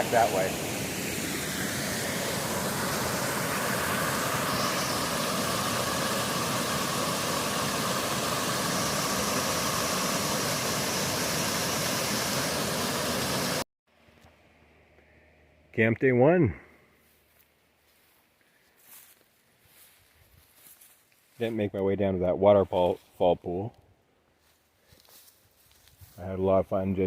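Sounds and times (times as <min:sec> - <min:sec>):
faint hiss: 0:00.0 - 0:13.6
waterfall rushing: 0:00.0 - 0:13.6.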